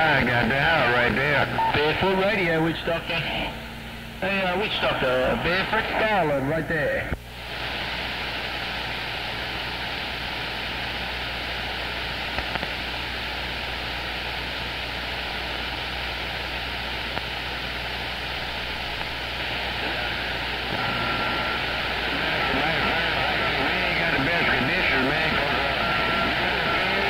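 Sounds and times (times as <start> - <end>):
faint hum: 0.0 - 27.0
radio static hiss: 0.0 - 27.0.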